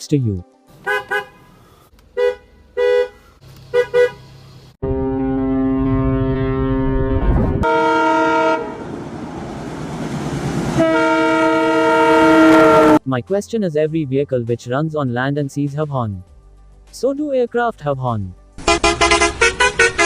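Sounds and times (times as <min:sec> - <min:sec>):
short vehicle horn honks: 0:00.8 - 0:01.6, 0:02.2 - 0:04.2, 0:18.6 - 0:20.0
low rumble: 0:04.8 - 0:07.7
higher-pitched horn blast: 0:04.8 - 0:09.0, 0:10.8 - 0:13.0, 0:18.6 - 0:20.0
long horn blast: 0:04.8 - 0:09.1, 0:10.7 - 0:13.0, 0:18.6 - 0:20.0.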